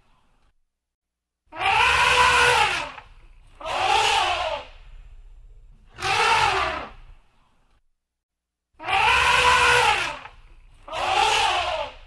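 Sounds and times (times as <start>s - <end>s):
elephant trumpeting: 1.5s - 3.0s, 3.6s - 4.7s, 5.9s - 7.0s, 8.8s - 12.0s.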